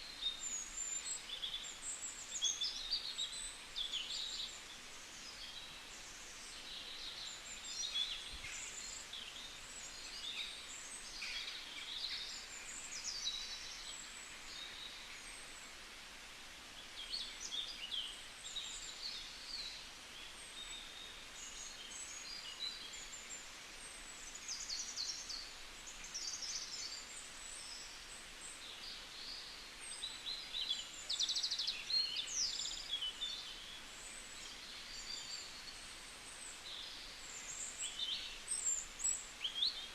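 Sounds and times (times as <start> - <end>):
steady hiss: 0.0 - 39.9
small birds chirping and calling: 24.2 - 39.9.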